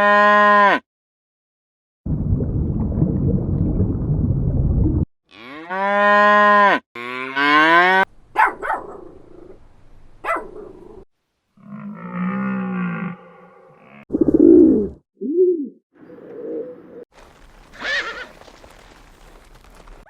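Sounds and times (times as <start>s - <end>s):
cattle mooing: 5.3s - 8.0s, 11.6s - 14.0s.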